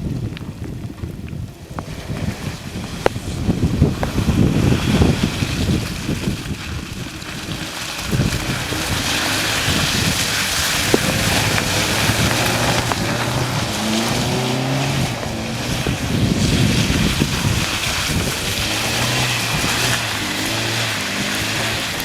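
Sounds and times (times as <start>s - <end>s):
wind buffeting microphone: 0.0s - 22.0s
car engine revving: 7.1s - 22.0s.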